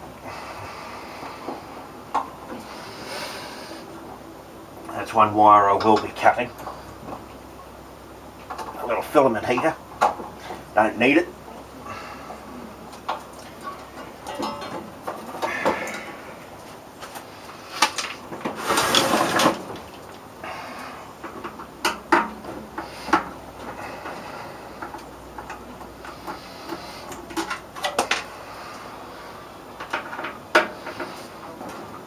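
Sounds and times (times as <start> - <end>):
scraping rustle: 13.5 - 20.0
tools clicking and knocking on metal: 24.8 - 28.3.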